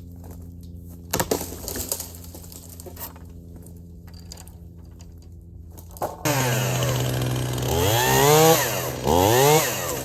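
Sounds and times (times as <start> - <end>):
chainsaw idling and revving: 6.2 - 10.0.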